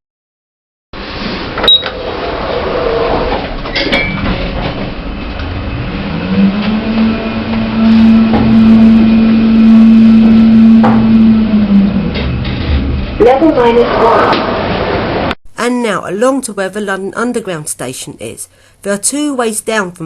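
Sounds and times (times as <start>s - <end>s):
lift drive humming: 1.3s - 15.3s.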